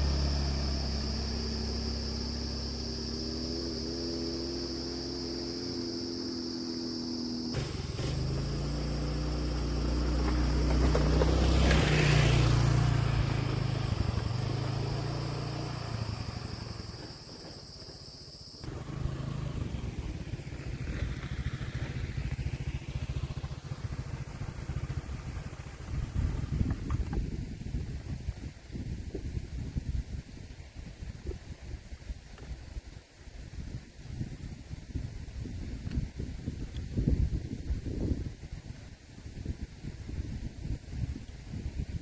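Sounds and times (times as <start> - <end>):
steady high buzz: 0.0 - 10.8
motor vehicle engine running: 0.0 - 28.3
engine fluttering unevenly: 7.6 - 28.3.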